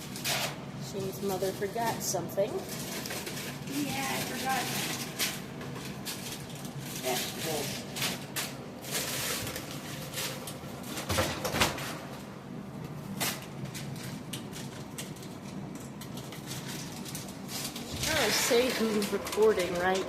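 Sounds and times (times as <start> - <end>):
kitchen knocks and clatters: 7.0 - 12.2.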